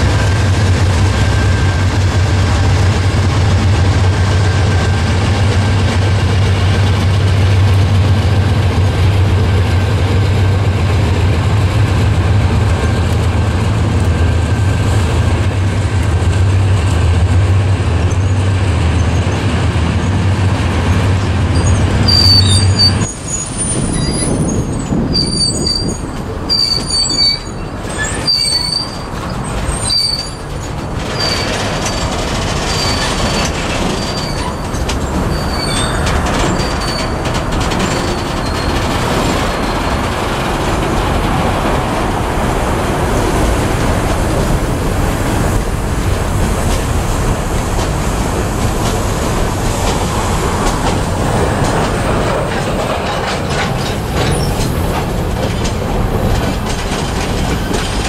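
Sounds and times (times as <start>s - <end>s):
steel wheels rumbling on rails: 0.0s - 58.0s
high wheel squeal: 21.5s - 40.1s.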